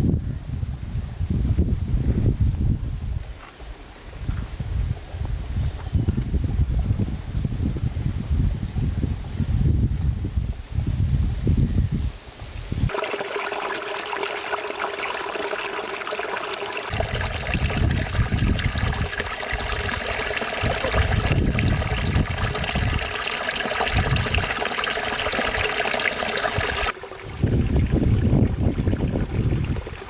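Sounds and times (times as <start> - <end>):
water trickling: 12.9 - 30.0.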